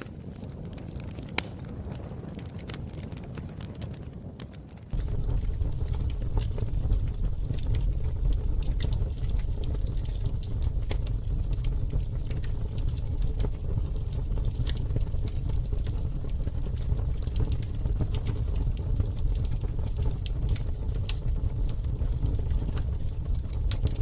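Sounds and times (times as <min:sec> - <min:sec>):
fire crackling and popping: 0:00.0 - 0:24.0
low rumble: 0:04.9 - 0:24.0.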